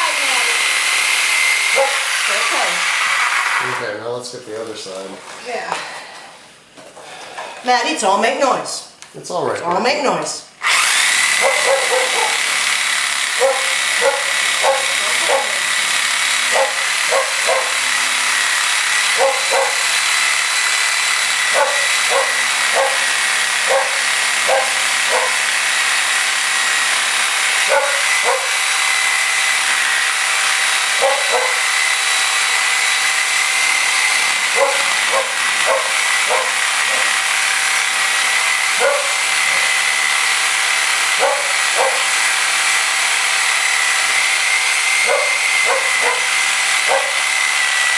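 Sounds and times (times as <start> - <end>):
reciprocating saw cutting: 0.0 - 4.1, 10.6 - 47.9
dog barking: 1.7 - 2.1, 11.4 - 12.5, 13.4 - 15.6, 16.5 - 17.8, 19.2 - 19.8, 21.5 - 25.4, 27.7 - 28.6, 31.0 - 31.7, 34.5 - 37.2, 38.8 - 39.7, 41.2 - 42.1, 45.0 - 46.3, 46.9 - 47.2.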